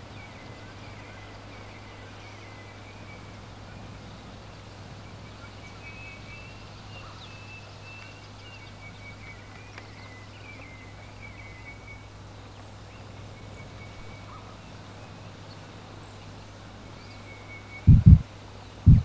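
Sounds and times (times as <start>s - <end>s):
background hiss: 0.0s - 19.0s
birds chirping: 0.0s - 19.0s
low hum: 17.8s - 19.0s.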